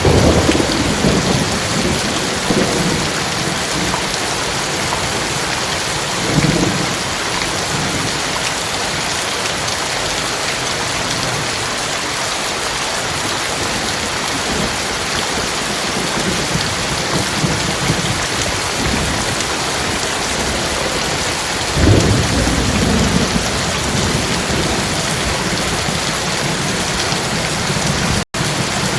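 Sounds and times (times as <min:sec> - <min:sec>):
thunder rumbling: 0:00.0 - 0:05.4, 0:13.8 - 0:28.9
heavy rain pouring: 0:00.0 - 0:28.9.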